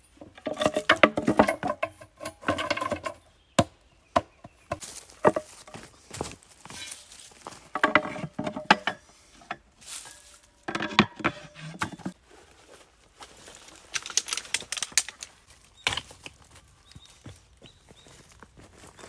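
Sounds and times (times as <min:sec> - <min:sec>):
clicks and knocks of hard objects: 0:00.2 - 0:03.2, 0:07.7 - 0:12.2, 0:13.8 - 0:16.5.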